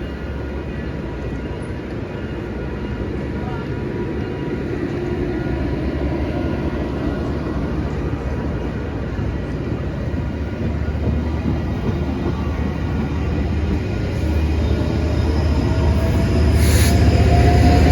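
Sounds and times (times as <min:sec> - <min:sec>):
train rumbling by: 0:00.0 - 0:17.9.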